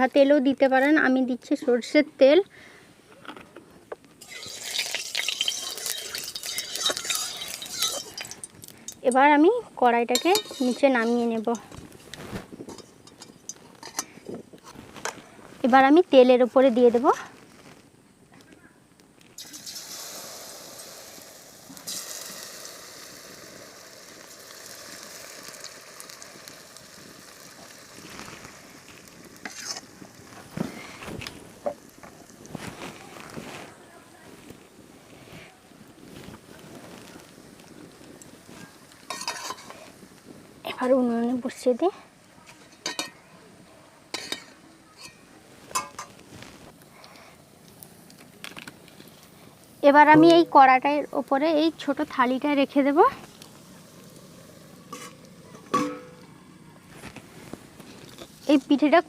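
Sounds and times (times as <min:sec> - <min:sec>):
metal cookware clanking: 0:04.2 - 0:09.0, 0:10.1 - 0:11.7, 0:12.7 - 0:14.2, 0:39.1 - 0:39.7, 0:44.1 - 0:46.1, 0:50.1 - 0:50.9, 0:54.9 - 0:56.2
batter sizzling in hot oil: 0:04.2 - 0:12.0, 0:19.4 - 0:32.9, 0:36.4 - 0:41.8, 0:47.6 - 0:56.3
utensils knocking and clinking: 0:10.1 - 0:11.6.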